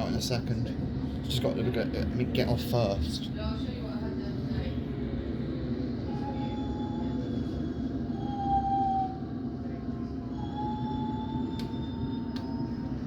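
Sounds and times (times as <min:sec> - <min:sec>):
train rumbling: 0:00.0 - 0:13.0
wheels and brakes squealing: 0:10.3 - 0:13.0.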